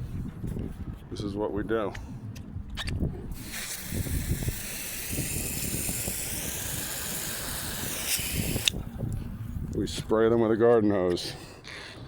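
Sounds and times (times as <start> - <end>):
garden hose spraying water: 3.4 - 8.7
low rumble: 6.2 - 10.6.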